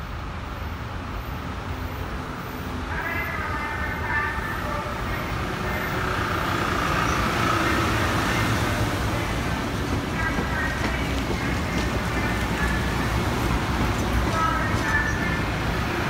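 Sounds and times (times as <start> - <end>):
train wheels rumbling on rails: 3.8 - 16.0.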